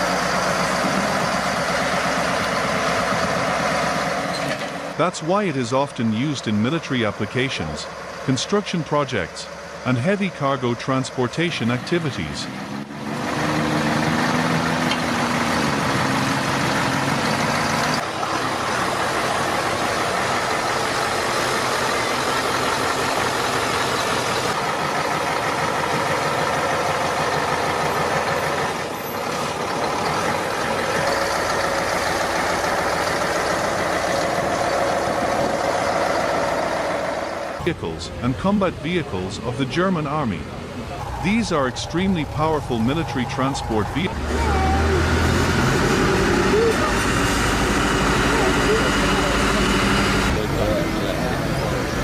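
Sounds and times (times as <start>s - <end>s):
heavy truck engine under load: 0.0s - 52.0s.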